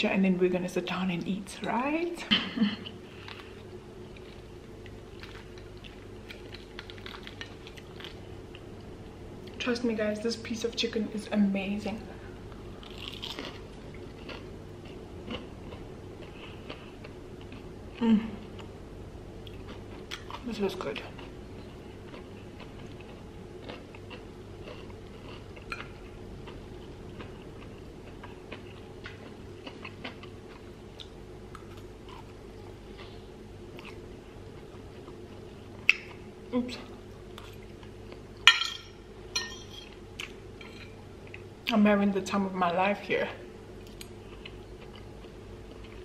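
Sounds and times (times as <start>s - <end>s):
steady low hum: 0.0s - 46.0s
person chewing food: 2.8s - 9.6s, 12.5s - 17.7s, 19.4s - 36.3s, 36.9s - 38.4s, 39.9s - 41.5s, 43.8s - 46.0s.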